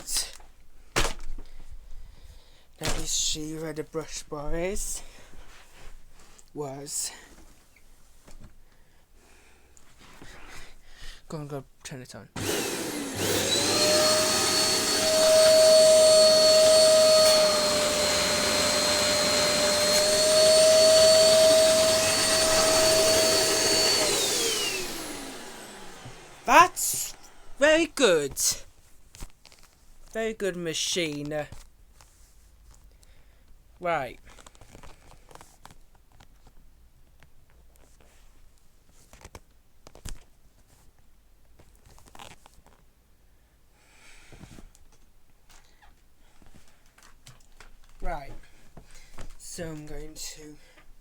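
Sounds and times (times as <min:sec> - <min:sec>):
vacuum cleaner whine: 0:12.4 - 0:28.6.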